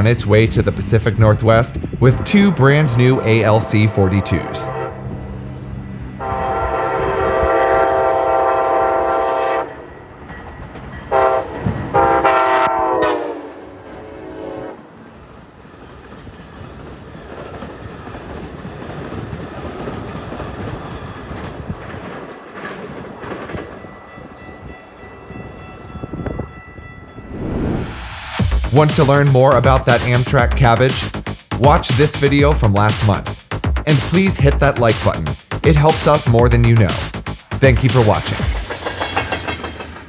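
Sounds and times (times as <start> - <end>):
train horn blasts: 2.2 - 5.4, 6.2 - 9.9, 11.1 - 15.0
train wheels running over rails: 14.9 - 24.3, 28.4 - 40.0.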